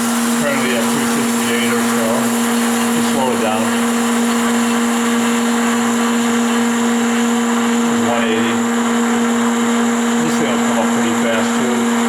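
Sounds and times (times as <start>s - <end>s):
grinder machine humming: 0.0s - 12.0s.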